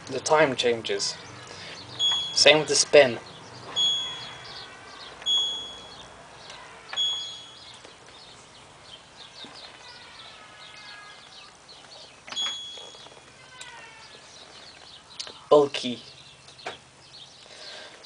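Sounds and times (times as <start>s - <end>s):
washing machine beeps: 2.0s - 2.6s, 3.7s - 4.4s, 5.2s - 6.0s, 7.0s - 7.7s, 12.3s - 13.1s.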